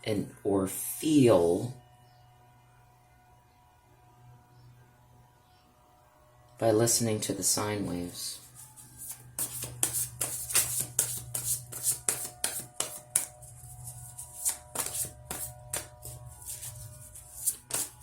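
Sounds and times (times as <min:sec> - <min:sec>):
soft background music with drone: 0:00.8 - 0:06.6
cards being shuffled: 0:08.4 - 0:18.0.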